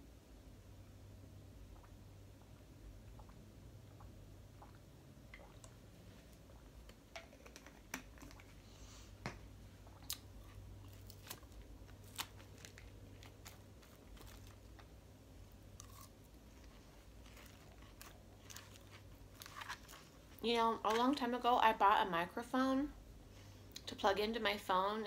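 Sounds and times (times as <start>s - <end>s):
low steady hum: 0.0s - 25.0s
chewing and crunching salad: 10.0s - 20.4s.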